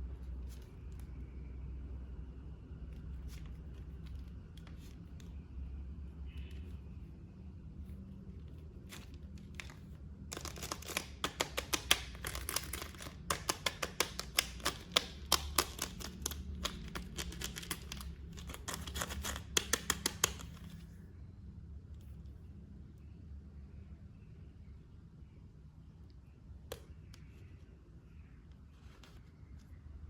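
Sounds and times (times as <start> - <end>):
plastic packaging crackling: 8.7 - 20.8.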